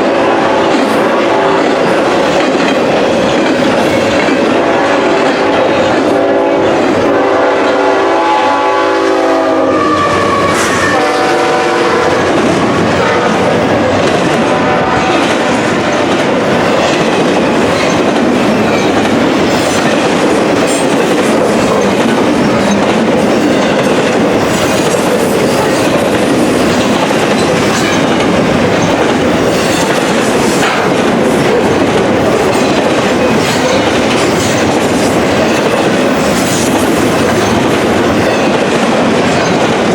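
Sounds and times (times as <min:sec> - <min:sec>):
locomotive air horn: 0:00.0 - 0:01.8, 0:06.1 - 0:13.7, 0:14.5 - 0:15.3
train wheels clacking on rails: 0:00.0 - 0:39.9.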